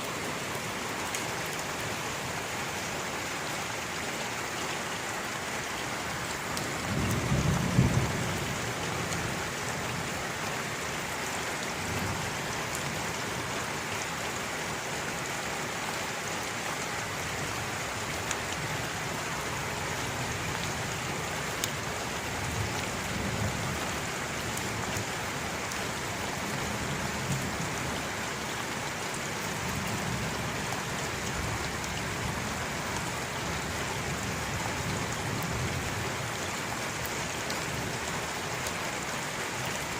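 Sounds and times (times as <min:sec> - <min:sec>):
steady rain: 0:00.0 - 0:39.9
thunder rumbles: 0:06.8 - 0:09.2.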